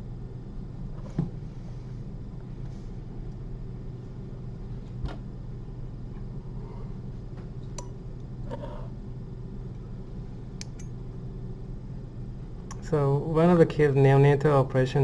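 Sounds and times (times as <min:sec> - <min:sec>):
electrical room hum: 0:00.0 - 0:15.0
sharp click: 0:10.6 - 0:11.0.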